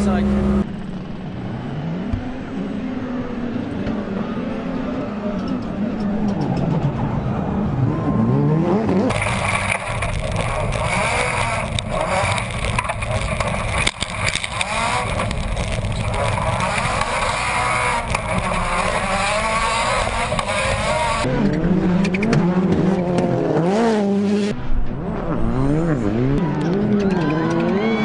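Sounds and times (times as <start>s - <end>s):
race car engine revving: 0.0s - 0.7s, 1.4s - 28.0s.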